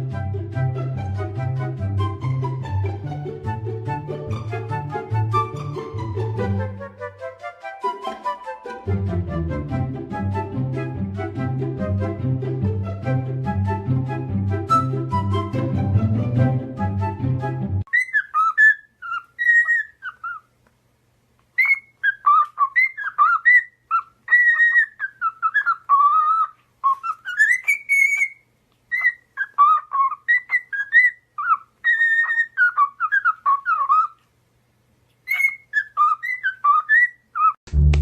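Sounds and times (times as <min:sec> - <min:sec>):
parrot whistling: 0:17.9 - 0:20.5, 0:21.6 - 0:34.2, 0:35.2 - 0:37.6.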